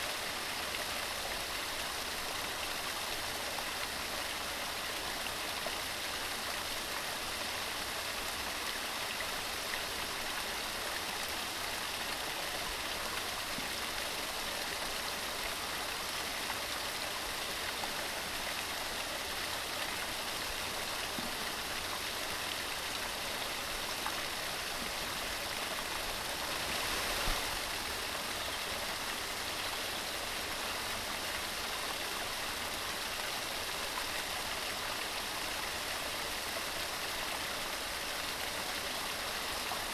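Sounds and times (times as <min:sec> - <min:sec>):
mountain stream rushing: 0:21.7 - 0:29.6.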